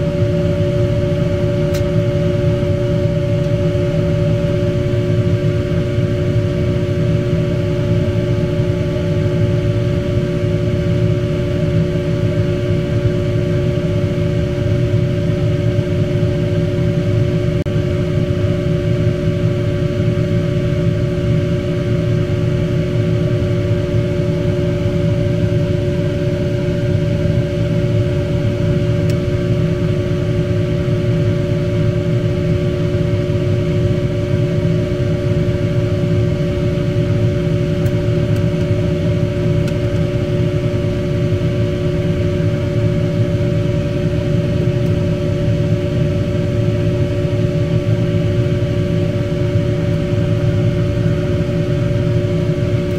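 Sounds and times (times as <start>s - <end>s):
mechanical hum and whir: 0.0s - 52.9s.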